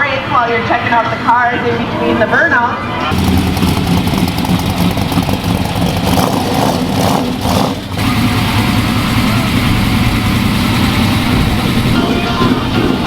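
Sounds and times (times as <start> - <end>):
car engine running loudly: 3.0 - 13.0.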